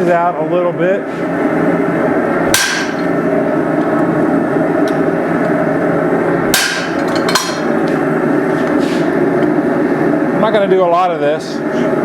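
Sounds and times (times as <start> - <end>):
hammer striking metal: 2.5 - 3.1, 6.5 - 7.8.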